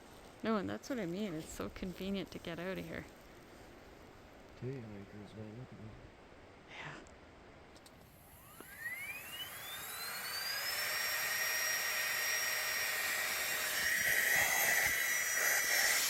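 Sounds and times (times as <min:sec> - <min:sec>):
electric motor whine: 0:08.0 - 0:16.0.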